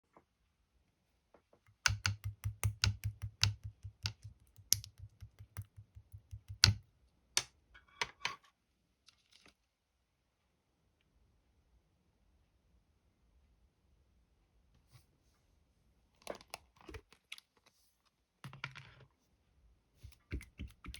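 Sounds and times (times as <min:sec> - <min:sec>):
sticky slime clicks: 0:01.8 - 0:06.8.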